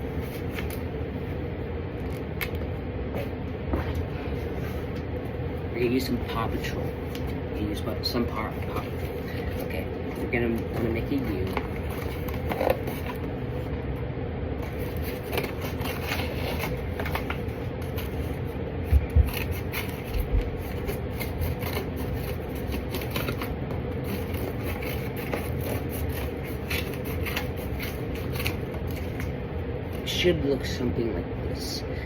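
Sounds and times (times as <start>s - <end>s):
cardboard rustling and scraping: 8.2s - 13.7s, 14.6s - 30.0s.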